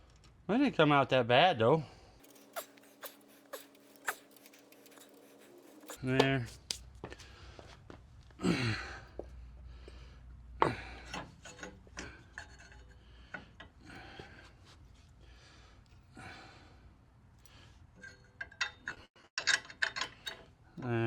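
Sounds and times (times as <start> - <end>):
scraping and rubbing of parts: 2.2 - 6.8.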